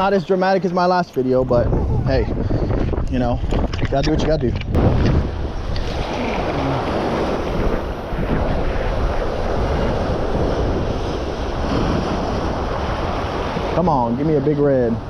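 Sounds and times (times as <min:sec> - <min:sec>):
wind buffeting microphone: 0:00.0 - 0:15.0
sea surf against rocks: 0:04.8 - 0:15.0.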